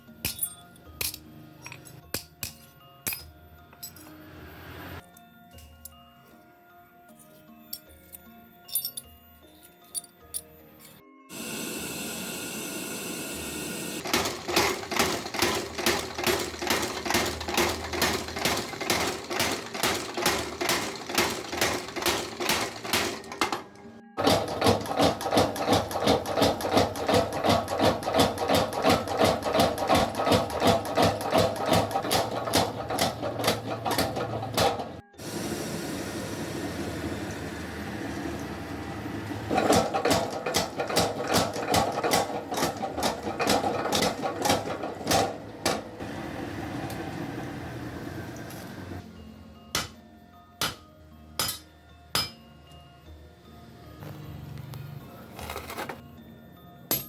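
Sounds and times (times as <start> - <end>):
hammer forging hot steel: 24.2 - 35.0, 39.5 - 46.0, 49.8 - 50.0, 50.6 - 52.4.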